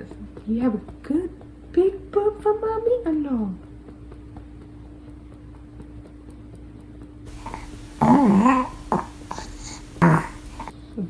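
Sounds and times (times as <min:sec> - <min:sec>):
steady low hum: 0:03.6 - 0:11.0
loud voiced burp: 0:07.3 - 0:10.7.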